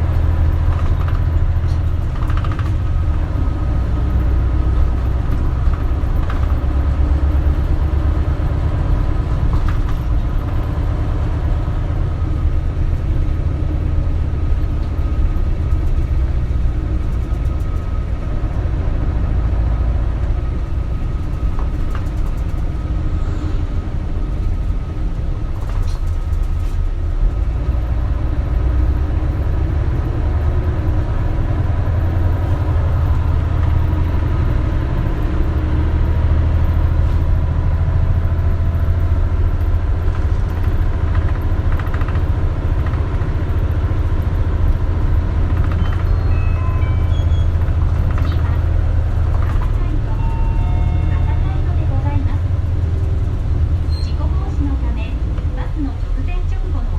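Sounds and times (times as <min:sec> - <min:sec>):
body rattles and knocks: 0:00.0 - 0:12.0, 0:20.6 - 0:23.0, 0:36.7 - 0:46.4, 0:47.2 - 0:50.1
bus engine drone: 0:00.0 - 0:56.9.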